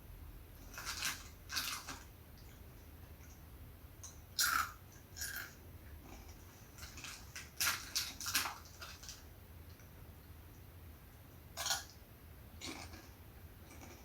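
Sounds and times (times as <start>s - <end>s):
crunchy snack being chewed: 4.4s - 9.2s, 11.6s - 11.9s, 12.6s - 14.0s.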